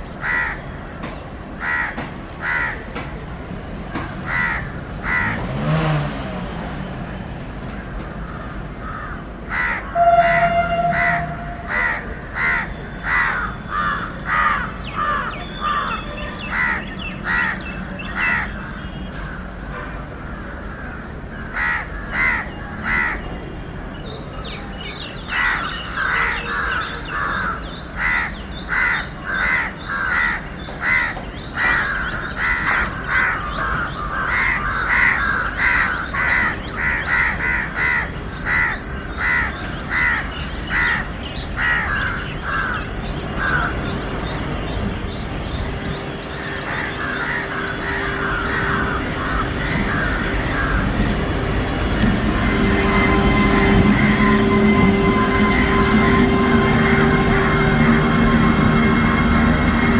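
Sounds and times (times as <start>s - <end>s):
bird calling: 8.2s - 19.5s.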